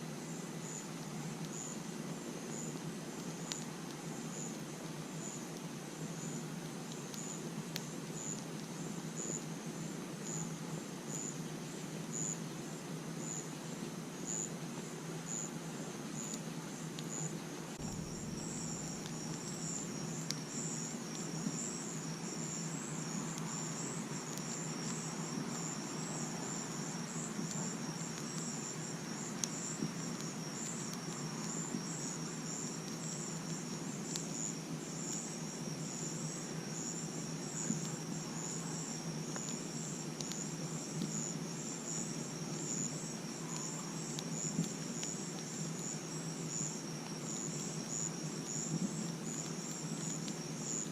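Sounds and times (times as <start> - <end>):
crickets chirping: 0.2 - 50.9
campfire crackling and popping: 16.1 - 50.9.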